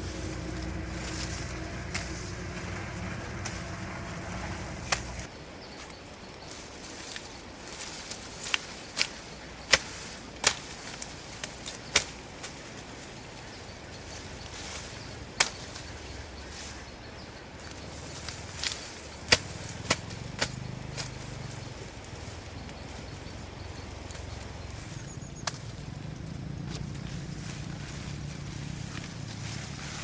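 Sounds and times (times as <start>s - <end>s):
low hum: 0.0s - 5.3s
steady background noise: 0.0s - 5.3s.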